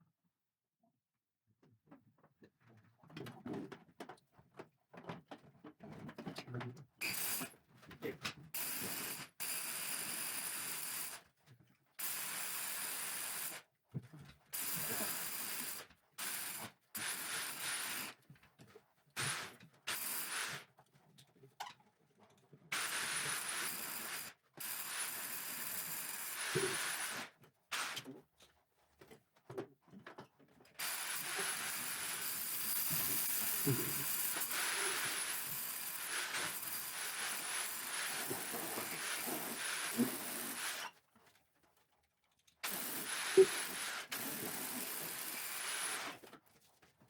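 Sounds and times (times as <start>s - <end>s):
power drill drilling wood: 22.8s - 28.0s, 30.8s - 41.0s, 42.6s - 46.3s.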